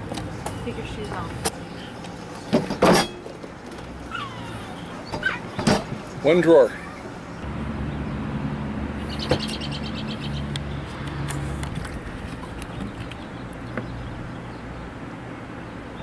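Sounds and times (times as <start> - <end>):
bird chirping trill: 9.0 - 10.8.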